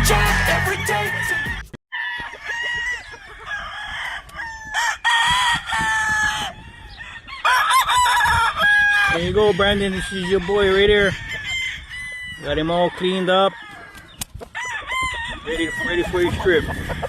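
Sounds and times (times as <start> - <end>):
roosters crowing: 0.0 - 17.0
chickens clucking: 12.4 - 17.0.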